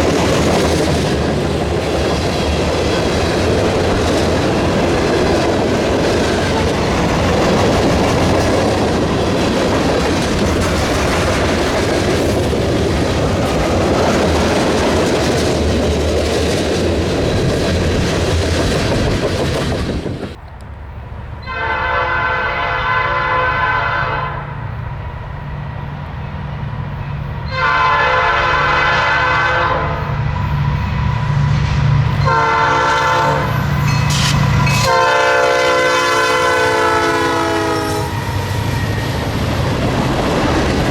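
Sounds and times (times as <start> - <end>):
train wheels on rails: 0.0 - 22.6, 24.6 - 40.9
locomotive air horn: 21.4 - 24.7, 27.5 - 30.2, 32.2 - 38.5.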